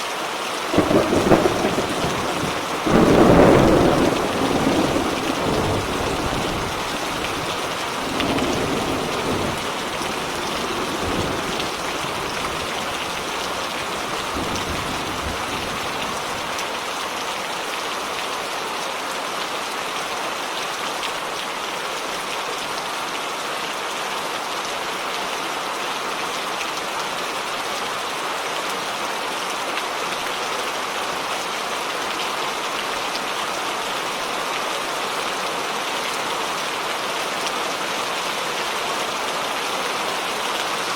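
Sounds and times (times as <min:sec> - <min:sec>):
heavy rain falling: 0:00.0 - 0:40.9
thunder rumble: 0:00.7 - 0:16.8.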